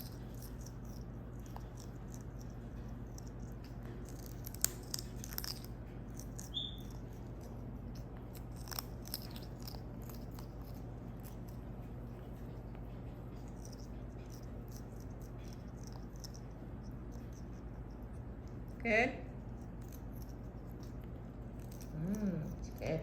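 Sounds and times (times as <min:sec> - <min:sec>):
parrot beak clicking and nibbling: 0:00.0 - 0:23.0
parrot high chirp: 0:06.5 - 0:07.0.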